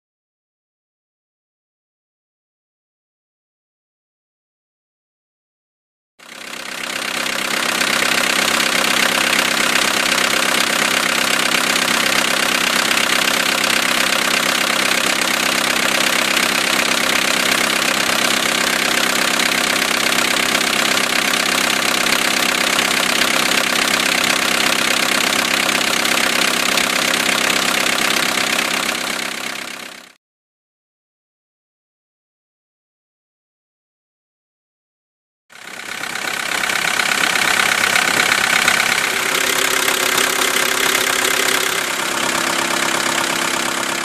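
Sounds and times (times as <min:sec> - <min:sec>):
diesel engine idling: 0:06.2 - 0:30.2, 0:35.6 - 0:44.0.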